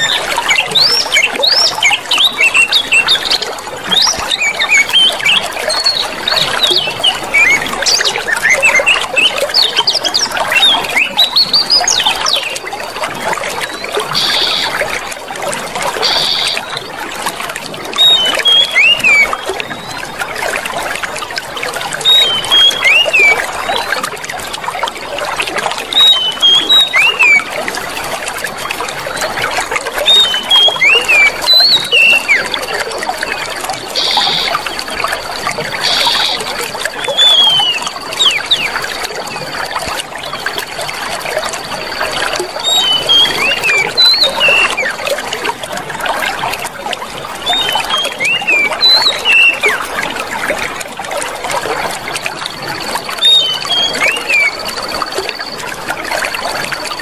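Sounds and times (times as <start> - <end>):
chirping bird calls: 0.0 - 12.7, 13.6 - 15.0, 16.0 - 16.8, 18.0 - 20.2, 22.0 - 23.9, 25.9 - 27.5, 30.0 - 39.1, 41.7 - 45.0, 47.4 - 50.0, 53.0 - 55.6
running water trickling: 0.0 - 57.0.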